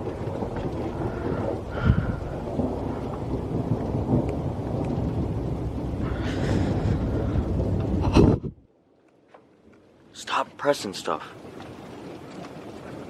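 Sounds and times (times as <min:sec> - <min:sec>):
thunder rumbling: 0:00.0 - 0:08.7
rain: 0:00.0 - 0:13.0.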